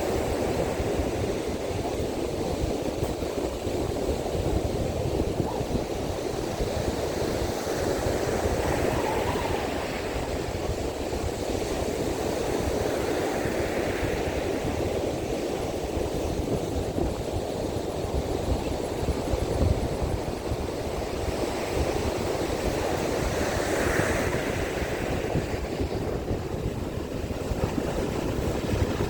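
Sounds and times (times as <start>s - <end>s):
strong wind: 0.0s - 29.0s
surf washing onto beach: 0.0s - 29.0s.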